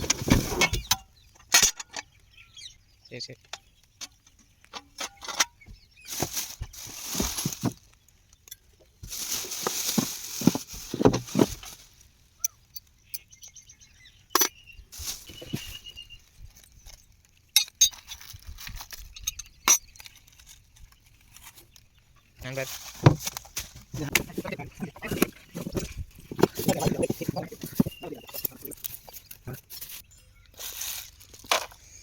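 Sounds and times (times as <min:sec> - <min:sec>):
scraping and rustling: 0:00.0 - 0:00.9, 0:06.1 - 0:08.0, 0:09.0 - 0:12.1, 0:14.9 - 0:17.0, 0:22.4 - 0:30.0
hard parts clinking and knocking: 0:09.9 - 0:11.6, 0:24.0 - 0:30.0.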